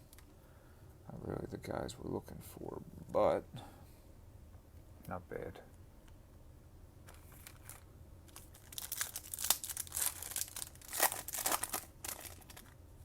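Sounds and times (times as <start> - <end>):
wrapper tearing and crinkling: 7.1 - 12.8.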